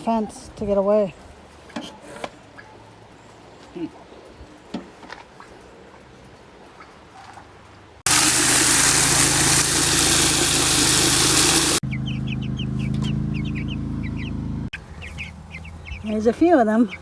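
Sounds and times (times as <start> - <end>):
vehicle engine idling: 8.1 - 16.0
chickens peeping and clucking: 8.1 - 16.2.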